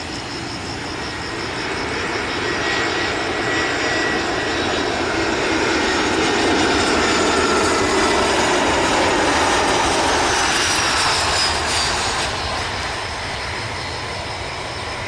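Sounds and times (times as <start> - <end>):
faint engine whine: 0.0 - 15.0
jet airliner engine roar: 0.0 - 15.0.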